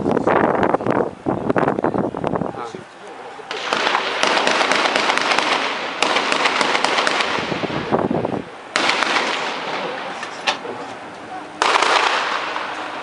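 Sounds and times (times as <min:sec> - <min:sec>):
rapid gunfire: 0:03.5 - 0:07.5, 0:08.8 - 0:09.8, 0:11.6 - 0:12.7.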